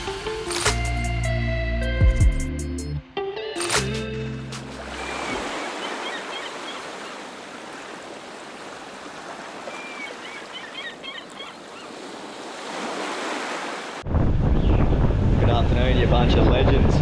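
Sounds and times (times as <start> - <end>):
waves washing on shore: 4.5 - 14.0.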